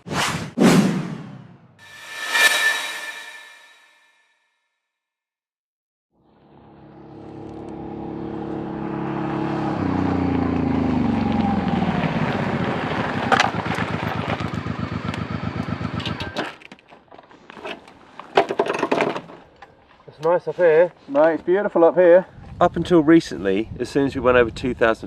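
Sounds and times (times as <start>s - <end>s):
motorcycle engine running: 6.2s - 16.1s.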